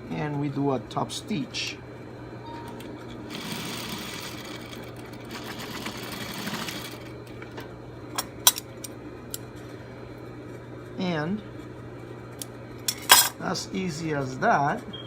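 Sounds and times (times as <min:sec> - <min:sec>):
sewing machine stitching: 0:03.3 - 0:07.1.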